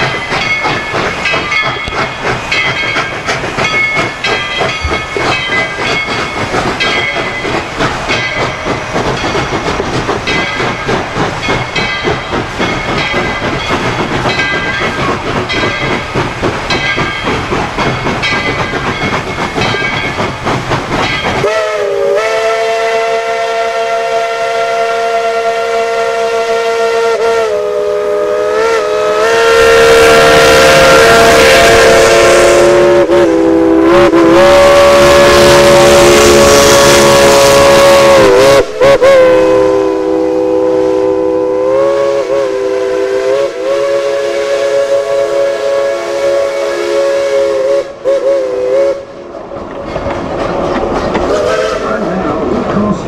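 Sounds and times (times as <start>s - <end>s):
steam hiss: 0.0s - 49.4s, 50.8s - 53.0s
steam locomotive exhaust beats: 0.0s - 53.0s
chime steam whistle blast: 21.1s - 49.2s, 51.3s - 51.9s.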